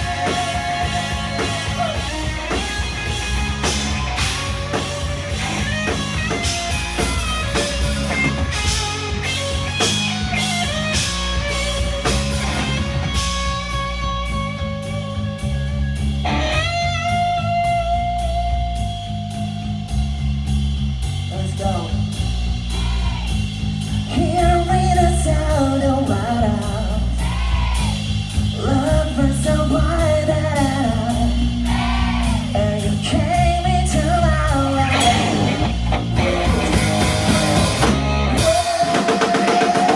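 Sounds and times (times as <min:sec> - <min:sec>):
lead vocal singing: 0:00.0 - 0:04.9, 0:22.7 - 0:37.0, 0:37.8 - 0:39.9
electric guitar: 0:00.0 - 0:20.0, 0:28.8 - 0:39.9
bass guitar: 0:00.0 - 0:39.9
drum kit: 0:00.0 - 0:39.9.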